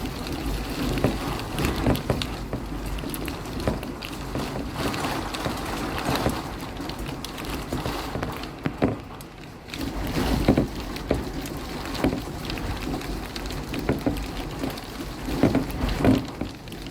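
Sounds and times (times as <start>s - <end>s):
steady rain falling: 0.0s - 16.9s.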